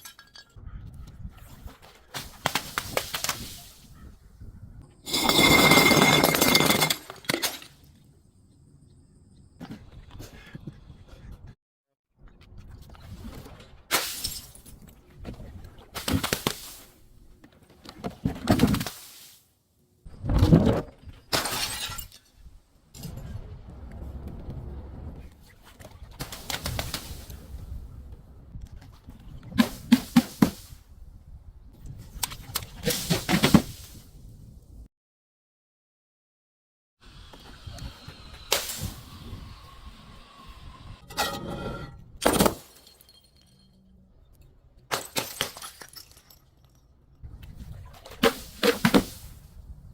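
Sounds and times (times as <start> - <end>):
crunching glass: 5.0 - 7.8, 21.2 - 22.5, 42.2 - 44.0
broken glass crunching: 5.1 - 7.7
glass shattering: 5.1 - 7.7, 21.3 - 22.3, 42.2 - 43.8, 44.9 - 46.8
glass bottles breaking: 5.1 - 7.8, 21.3 - 22.3, 42.2 - 43.8, 44.9 - 46.8.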